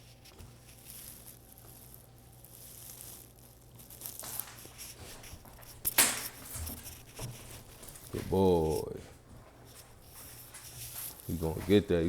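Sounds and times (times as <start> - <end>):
puppy rustling and scuffling: 3.8 - 12.0.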